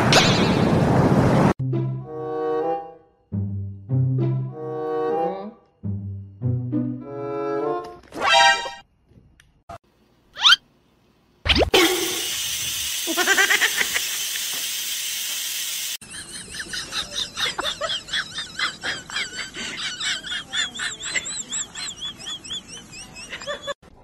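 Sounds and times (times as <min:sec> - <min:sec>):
steam vent hissing: 0:11.8 - 0:16.0.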